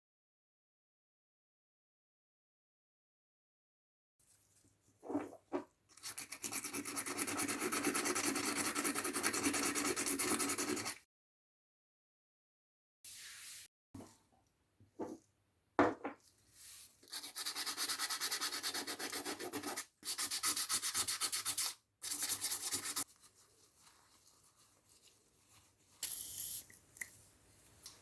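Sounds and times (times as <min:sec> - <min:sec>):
sanding strokes: 0:06.2 - 0:11.0, 0:17.1 - 0:23.1.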